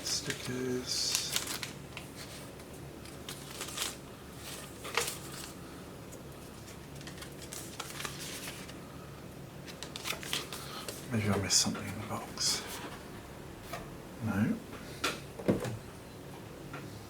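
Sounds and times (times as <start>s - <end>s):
packaging rustling and clicking: 0.2s - 8.8s.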